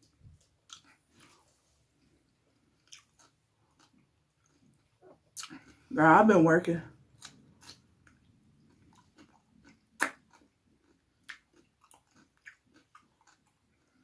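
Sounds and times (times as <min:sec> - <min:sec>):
person chewing food: 0:00.0 - 0:05.9, 0:07.0 - 0:14.0
mouth clicks: 0:10.0 - 0:10.4.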